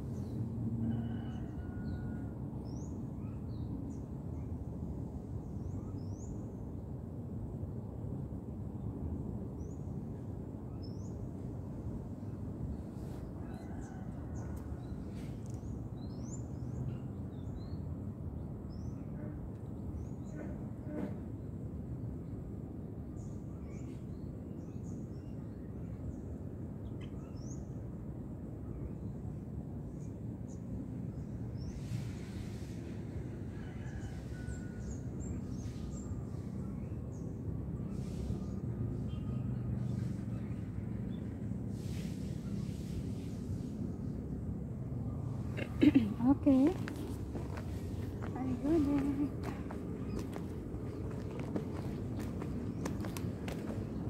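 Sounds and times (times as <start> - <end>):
small birds chirping: 45.6 - 53.7.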